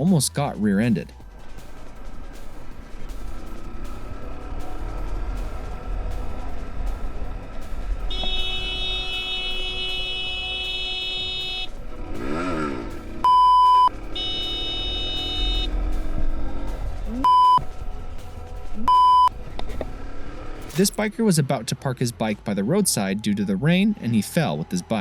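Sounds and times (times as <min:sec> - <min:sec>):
road rumble: 0:01.0 - 0:22.7
vehicle horn blasts: 0:08.1 - 0:11.8, 0:13.3 - 0:15.7
censor bleeps: 0:13.2 - 0:15.7, 0:17.1 - 0:17.6, 0:18.8 - 0:19.3.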